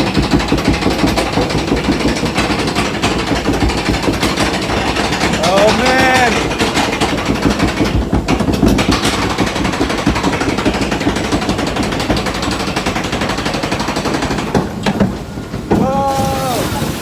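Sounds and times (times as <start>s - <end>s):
lift hill mechanical clatter: 0.0s - 17.0s.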